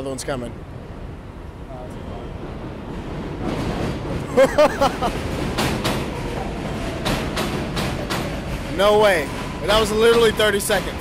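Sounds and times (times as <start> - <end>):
subway train rumbling: 0.0 - 11.0
train wheel squeals: 6.0 - 11.0.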